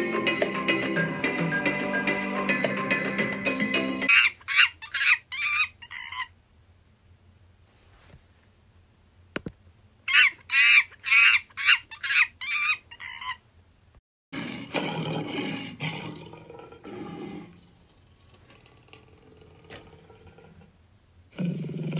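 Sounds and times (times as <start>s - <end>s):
monkey squeaky calls: 4.1s - 6.3s, 10.1s - 13.4s
low rough growling: 14.4s - 21.9s.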